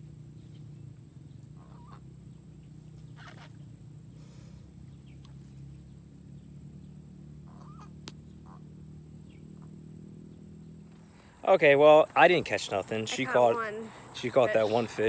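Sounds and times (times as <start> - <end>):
steady low hum: 0.0 - 15.0
short bird calls: 0.4 - 6.5, 7.4 - 9.7.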